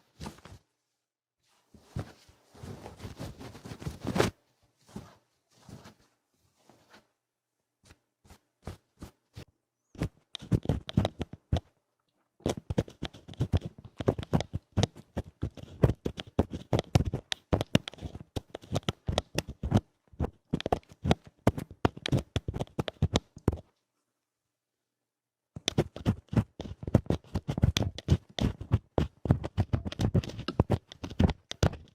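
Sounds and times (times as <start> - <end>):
rough scratching at the ear: 25.6 - 31.9.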